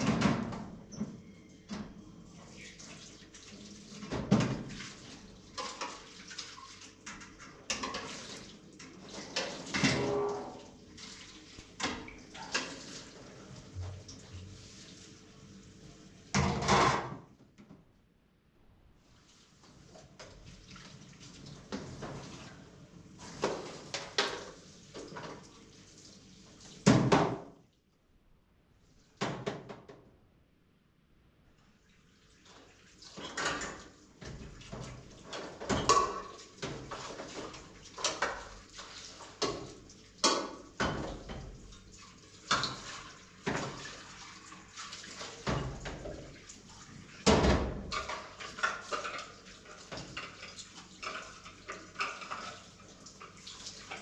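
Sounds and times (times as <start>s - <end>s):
water running: 2.1s - 16.7s, 19.0s - 27.9s, 31.6s - 54.0s
pots and dishes clattering: 5.5s - 6.3s, 7.0s - 10.8s, 11.8s - 14.2s, 16.4s - 17.2s, 33.1s - 41.6s, 47.2s - 54.0s.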